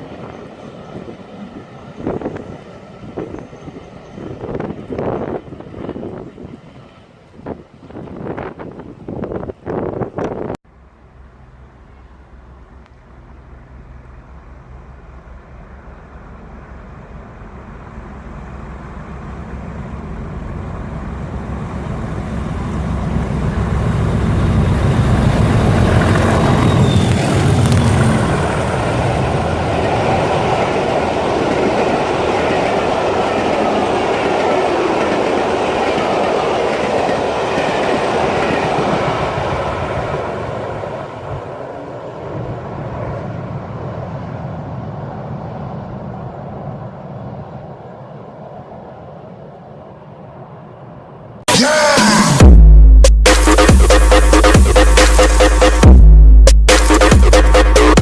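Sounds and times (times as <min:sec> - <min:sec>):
diesel locomotives passing: 0:00.0 - 0:52.6.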